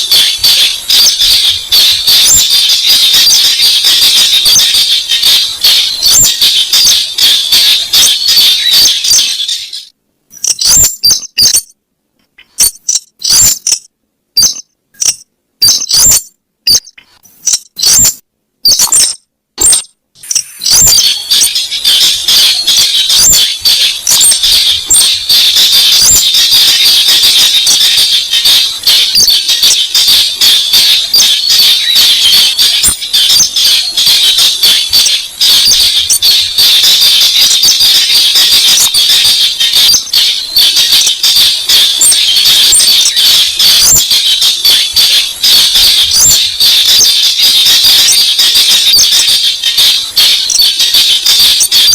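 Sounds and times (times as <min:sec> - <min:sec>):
rail bird squeaky calls: 0:10.4 - 0:11.7, 0:12.4 - 0:13.8, 0:14.4 - 0:44.3.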